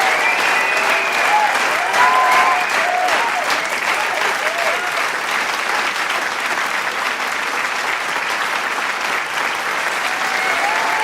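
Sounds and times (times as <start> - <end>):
voices cheering and whooping: 0.0 - 5.0, 10.0 - 11.0
crowd applauding: 0.0 - 11.0.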